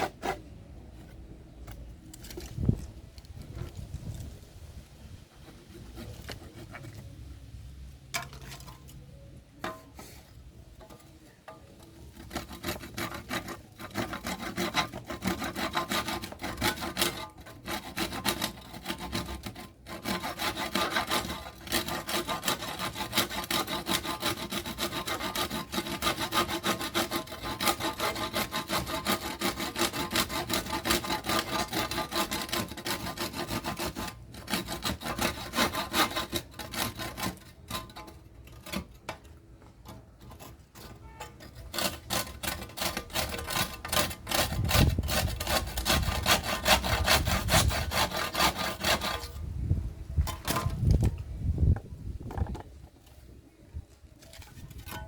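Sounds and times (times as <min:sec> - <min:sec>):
hand tool scraping a workpiece: 0:00.0 - 0:04.4, 0:05.3 - 0:07.2, 0:08.2 - 0:49.6, 0:50.2 - 0:53.4, 0:54.1 - 0:55.0.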